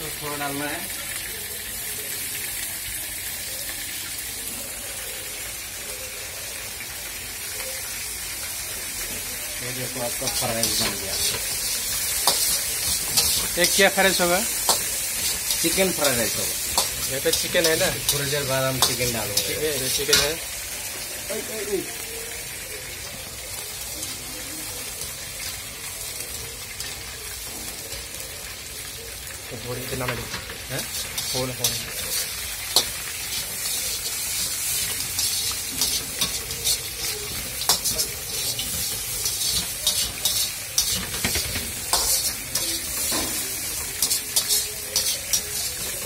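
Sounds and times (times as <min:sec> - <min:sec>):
rice sizzling in a pan: 0:00.0 - 0:46.0.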